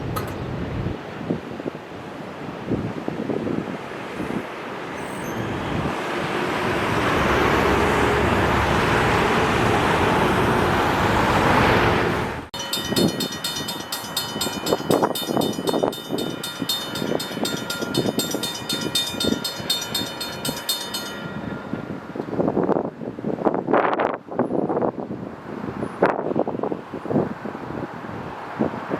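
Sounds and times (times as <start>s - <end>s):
train rumbling past: 4.8s - 23.2s
rail clatter: 12.6s - 22.4s
pulsing metallic ringing: 12.6s - 22.8s.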